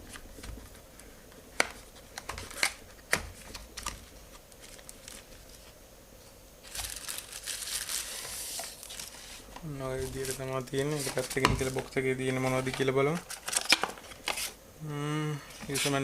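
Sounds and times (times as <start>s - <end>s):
packaging crinkling: 1.6s - 5.8s, 6.6s - 14.6s.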